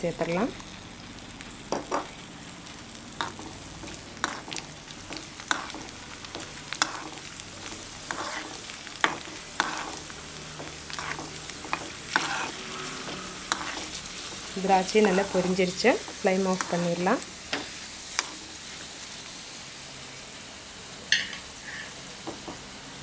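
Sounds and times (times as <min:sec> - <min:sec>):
nuts frying with steady sizzle: 0:00.0 - 0:23.0
steel spoon scraping and tapping pan: 0:08.1 - 0:10.0, 0:10.6 - 0:14.0, 0:14.8 - 0:15.6.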